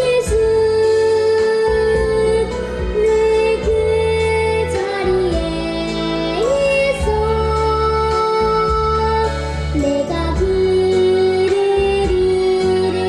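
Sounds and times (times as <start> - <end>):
child singing: 0.0 - 13.0
instrumental accompaniment: 0.0 - 13.0.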